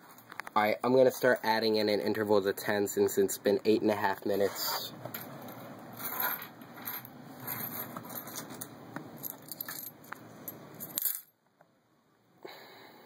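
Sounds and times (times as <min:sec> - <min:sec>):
coins clinking: 0:05.2 - 0:11.3.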